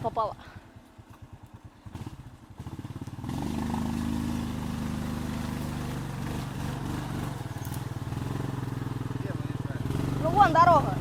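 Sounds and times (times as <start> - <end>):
small off-road vehicle engine: 0.0 - 11.0.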